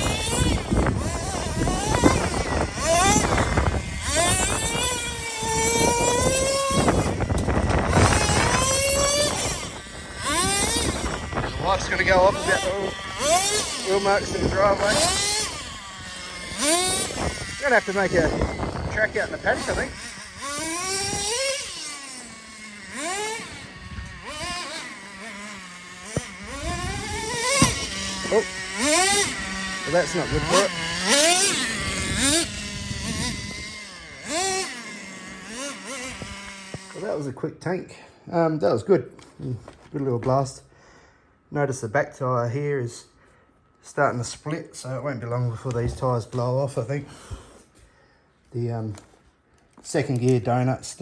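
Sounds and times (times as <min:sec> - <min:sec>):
small engine revving high whine: 0:00.0 - 0:37.4.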